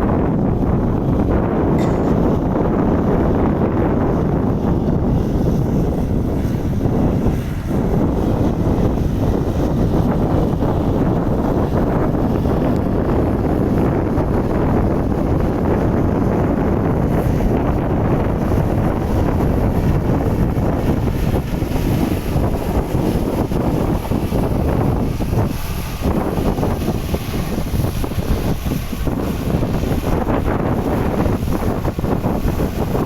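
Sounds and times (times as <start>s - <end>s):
wind buffeting microphone: 0.0s - 33.0s
tractor engine rumble: 0.3s - 33.0s.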